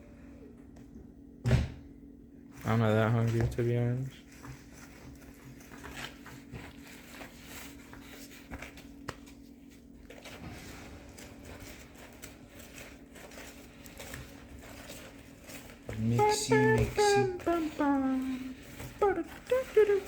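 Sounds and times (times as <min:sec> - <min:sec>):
spoon stirring batter in bowl: 0:04.3 - 0:20.0.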